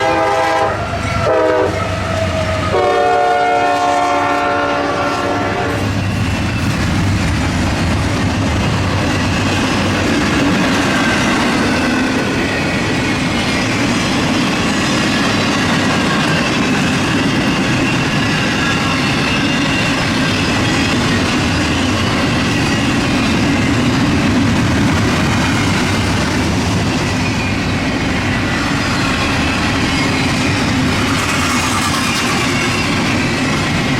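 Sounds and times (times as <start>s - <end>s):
train air horn blasts: 0.0s - 5.9s
train passing at speed: 0.0s - 33.9s.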